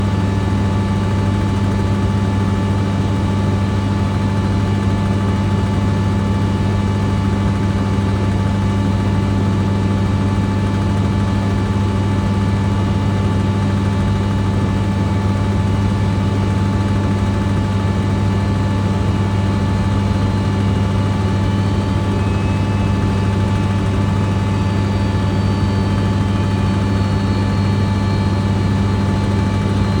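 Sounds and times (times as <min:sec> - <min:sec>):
engine drone: 0:10.6 - 0:30.0
faint high whine: 0:17.3 - 0:30.0.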